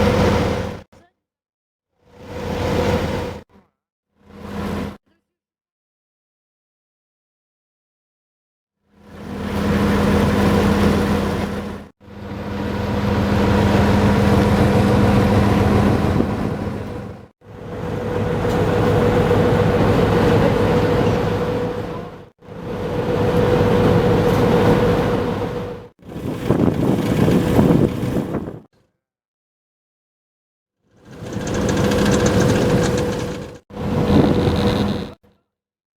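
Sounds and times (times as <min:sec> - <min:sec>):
loud rumbling noise: 0:09.5 - 0:28.6, 0:31.1 - 0:35.2
vehicle engine humming: 0:09.8 - 0:25.9, 0:31.1 - 0:35.2.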